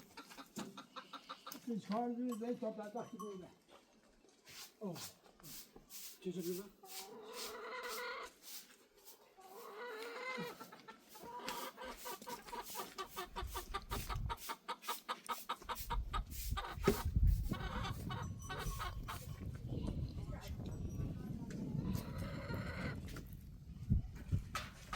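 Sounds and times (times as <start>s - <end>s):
chickens clucking: 0.0s - 2.3s, 6.4s - 20.1s, 21.3s - 23.3s.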